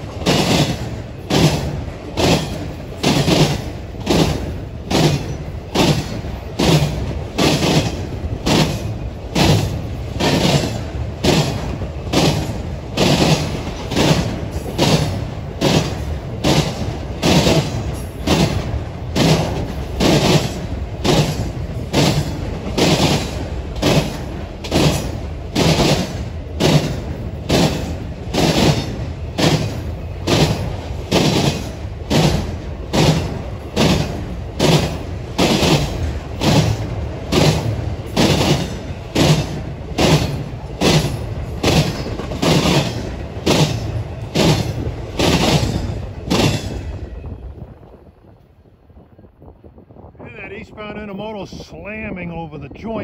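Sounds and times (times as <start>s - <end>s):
train wheels clacking over rail: 0.0s - 47.2s.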